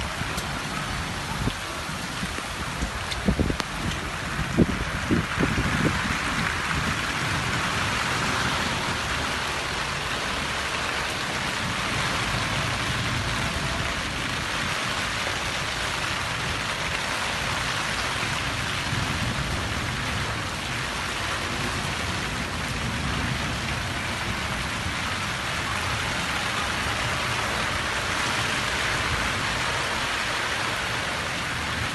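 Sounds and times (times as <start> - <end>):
heavy rain hissing: 0.0 - 31.9.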